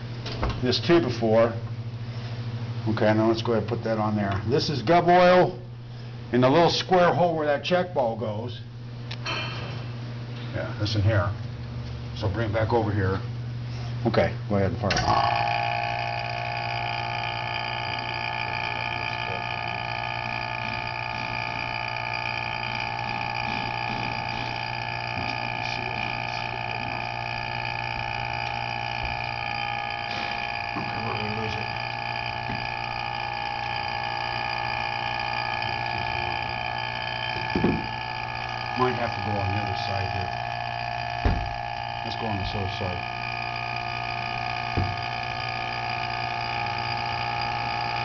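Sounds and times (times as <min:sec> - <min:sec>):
electric vacuum pump humming: 0:00.0 - 0:48.0.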